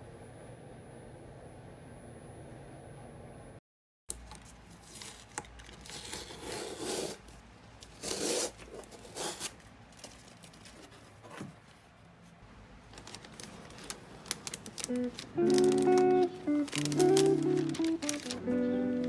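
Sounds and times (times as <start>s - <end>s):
rustling and tearing swishes: 12.9s - 18.6s.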